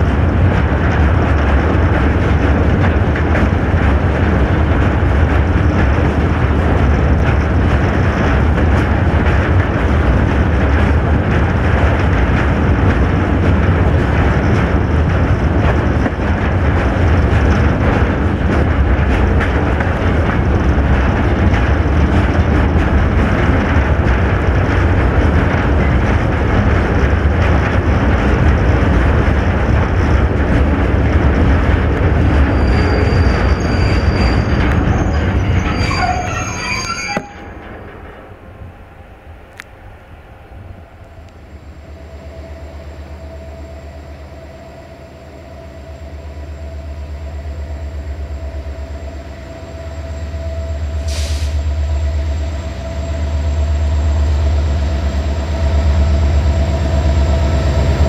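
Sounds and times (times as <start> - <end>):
train rumbling on rails: 0.0 - 58.0
high wheel squeal: 32.2 - 37.6.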